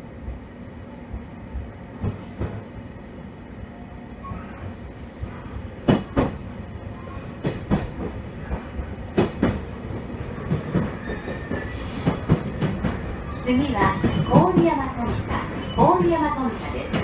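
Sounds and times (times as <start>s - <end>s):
train running rumble: 0.0s - 17.0s
train wheels clacking over rail joints: 5.4s - 17.0s.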